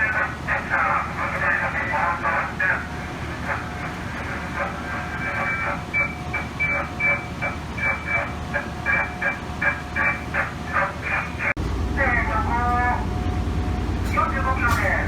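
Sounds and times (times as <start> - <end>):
voices over train radio: 0.0 - 15.0
low steady hum: 11.6 - 15.0.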